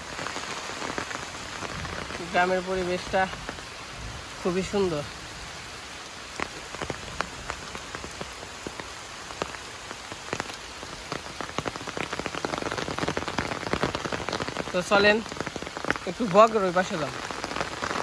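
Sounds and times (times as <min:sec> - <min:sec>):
rain hiss: 0:00.0 - 0:18.0
raindrops striking close by: 0:00.0 - 0:18.0.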